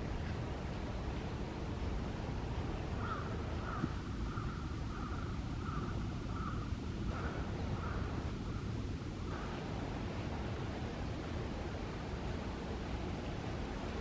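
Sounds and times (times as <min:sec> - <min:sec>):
wind rumble on microphone: 0:00.0 - 0:14.0
crow cawing: 0:03.0 - 0:06.6.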